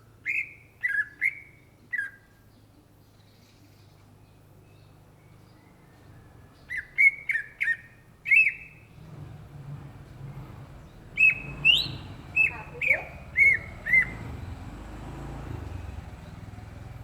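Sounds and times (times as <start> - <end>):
bird singing whistled notes: 0.0 - 9.1, 10.6 - 14.8.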